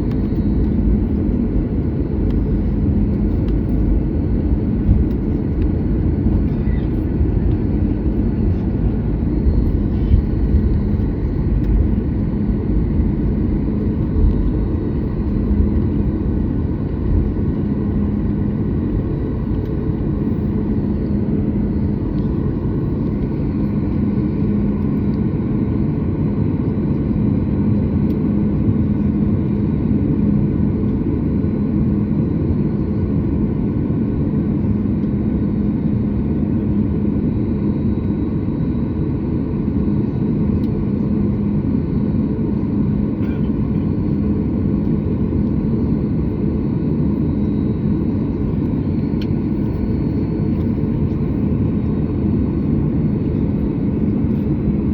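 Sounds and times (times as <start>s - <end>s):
jet engines idling: 0.0s - 54.9s.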